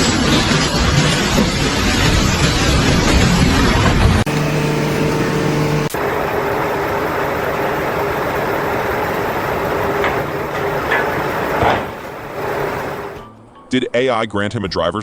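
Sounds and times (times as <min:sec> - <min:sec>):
heavy vehicle engine running: 0:04.3 - 0:13.2.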